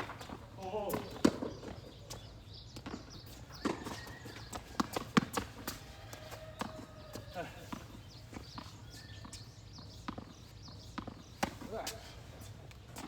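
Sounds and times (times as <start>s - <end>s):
rackets striking tennis ball: 0.0s - 1.9s, 2.8s - 13.0s
footsteps on court: 0.0s - 13.0s
ball bouncing on court: 3.6s - 6.8s.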